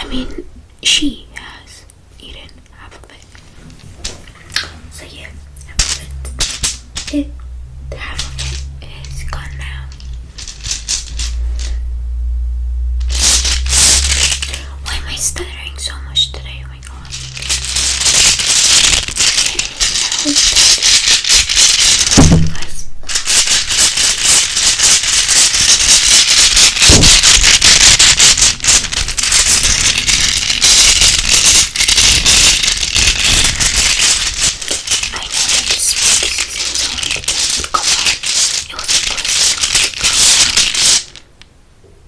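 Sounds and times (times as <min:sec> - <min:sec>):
scratching on microphone: 0:13.1 - 0:41.2.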